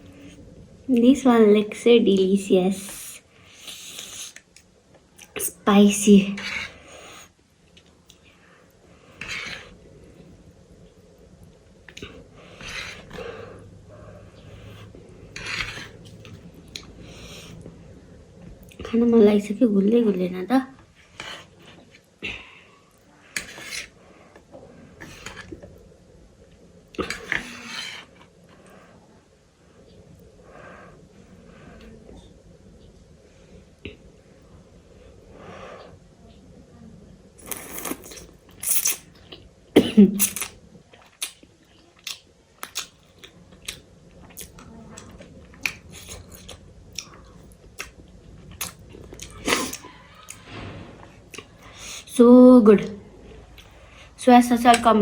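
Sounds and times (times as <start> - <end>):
faint low hum: 0.0 - 55.0
chewing: 40.2 - 52.1.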